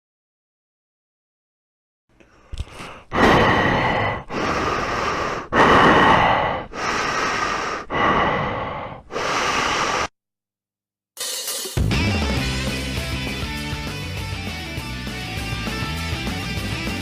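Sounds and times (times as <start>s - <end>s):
person breathing hard: 2.2s - 10.2s.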